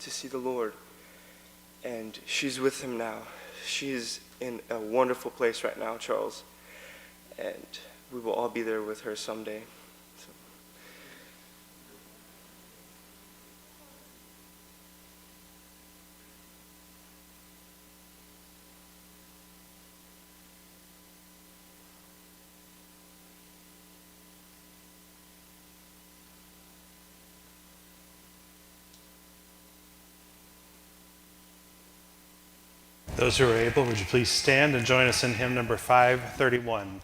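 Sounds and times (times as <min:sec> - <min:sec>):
faint hiss: 0:00.0 - 0:20.1
electrical hum: 0:00.0 - 0:37.0.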